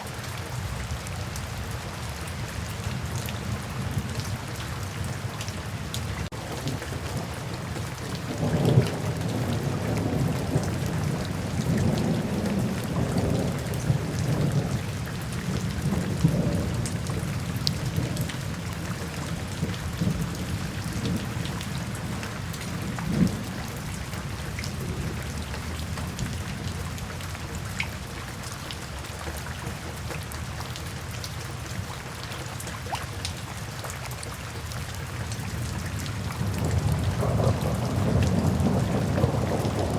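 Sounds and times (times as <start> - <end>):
steady rain: 0.0 - 39.9
thunder rumbling: 6.3 - 27.7, 35.7 - 39.9.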